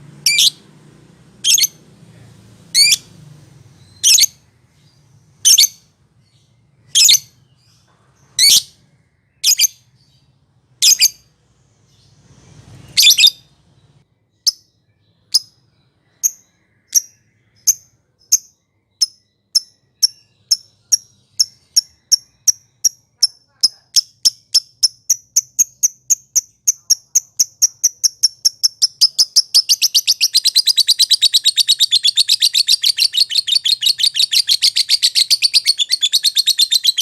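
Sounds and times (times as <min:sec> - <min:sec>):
lovebird calling: 0:00.2 - 0:00.6, 0:01.4 - 0:01.8, 0:02.7 - 0:03.1, 0:03.8 - 0:04.4, 0:19.0 - 0:37.0.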